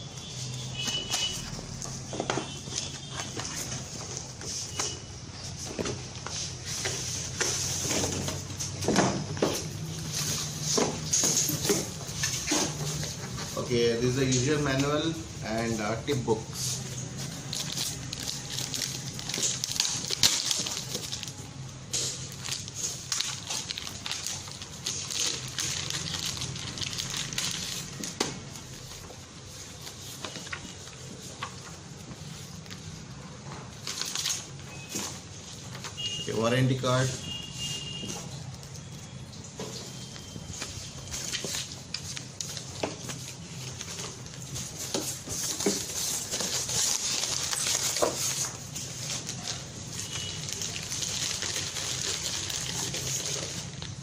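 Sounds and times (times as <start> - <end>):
paper rustling: 0.1 - 54.0
items clicking and knocking: 0.8 - 13.6, 39.4 - 54.0.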